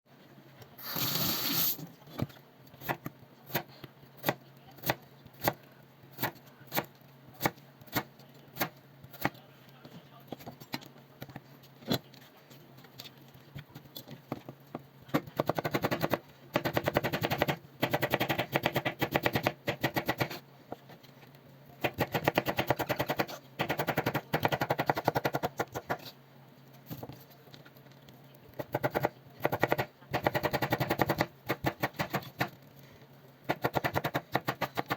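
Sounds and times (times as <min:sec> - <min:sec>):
knife chopping vegetables on board: 0:02.2 - 0:09.4, 0:15.1 - 0:20.4, 0:21.8 - 0:26.1, 0:28.6 - 0:32.6, 0:33.5 - 0:34.9.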